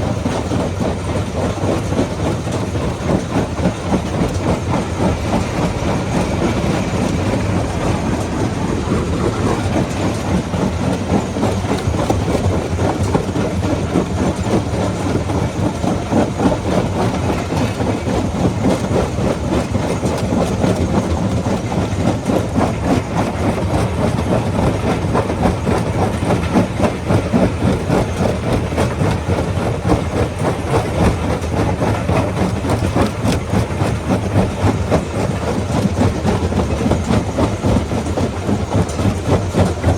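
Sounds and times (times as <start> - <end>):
rock crusher hum: 1.3 - 18.6.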